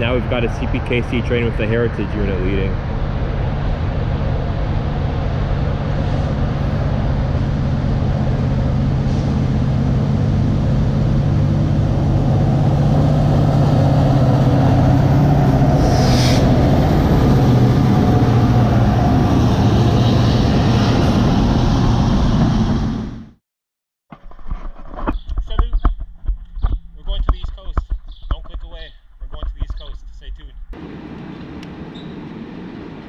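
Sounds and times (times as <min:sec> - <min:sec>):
train wheels rumbling on rail: 0:00.0 - 0:23.3
diesel locomotive engine drone: 0:00.0 - 0:23.4, 0:30.8 - 0:33.0
short sharp high sound: 0:15.8 - 0:16.6.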